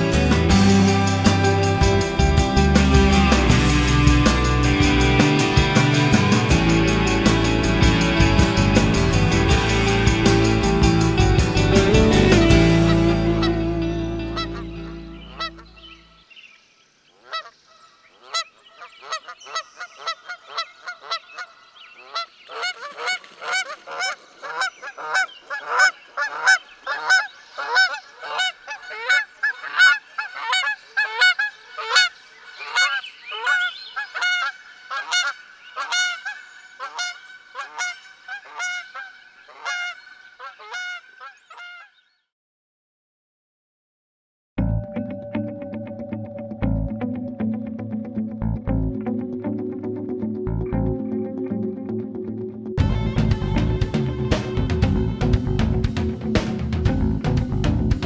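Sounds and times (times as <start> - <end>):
music: 0.0 - 16.0, 44.6 - 58.0
geese honking: 12.2 - 16.0, 17.2 - 17.6, 18.2 - 41.9.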